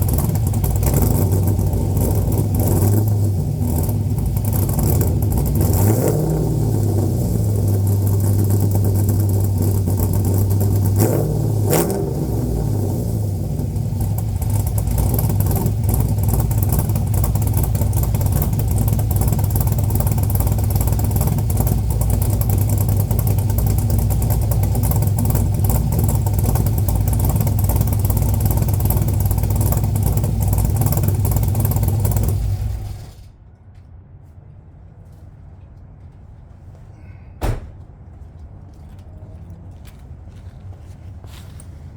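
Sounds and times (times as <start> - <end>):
car engine idling: 0.0 - 33.4
engine shutting off: 0.0 - 33.4
sharp knock: 37.4 - 37.8.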